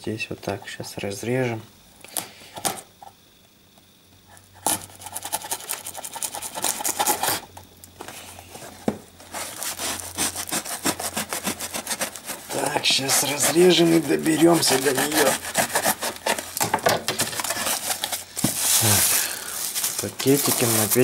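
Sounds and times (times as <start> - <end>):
blade sawing through packaging: 4.6 - 7.5, 9.2 - 21.0.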